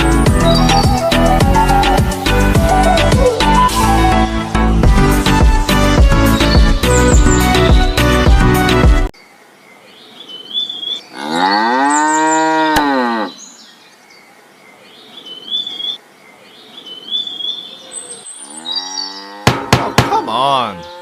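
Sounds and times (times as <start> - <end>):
small birds chirping: 0.0 - 2.4, 6.2 - 8.0, 9.2 - 19.4
cow mooing: 11.1 - 13.4, 18.5 - 19.6, 20.7 - 21.0.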